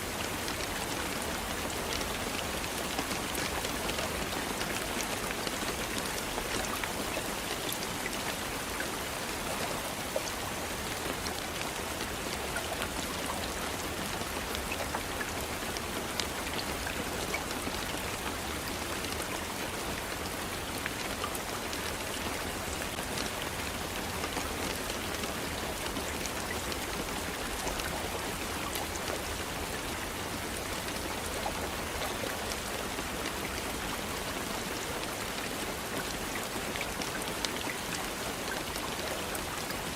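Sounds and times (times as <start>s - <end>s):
raindrops pattering on a surface: 0.0s - 39.9s
steady rain falling: 0.0s - 39.9s.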